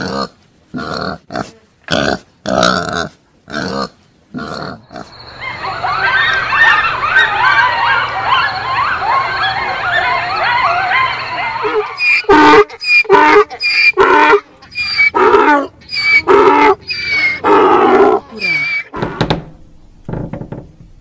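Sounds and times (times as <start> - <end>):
wild boar squealing: 3.5 - 19.2
animal honking calls: 5.5 - 19.2.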